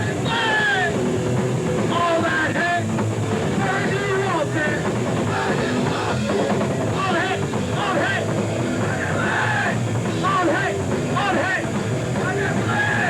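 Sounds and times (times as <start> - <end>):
shouted vocals: 0.0 - 1.0, 3.6 - 13.0
distorted guitars: 0.0 - 13.0
drums: 0.0 - 13.0
punk band playing live: 0.0 - 13.0.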